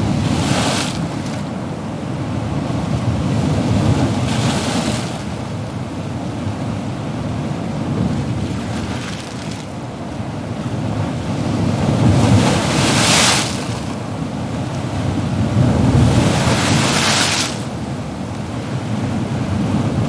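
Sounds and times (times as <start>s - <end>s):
ocean waves breaking: 8.0s - 20.0s.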